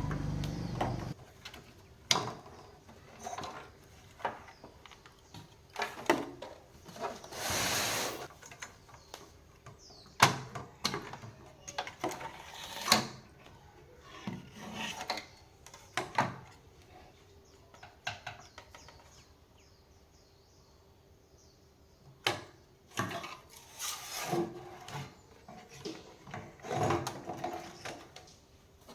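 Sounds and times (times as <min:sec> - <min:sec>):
tools knocking and scraping: 0:00.0 - 0:01.2.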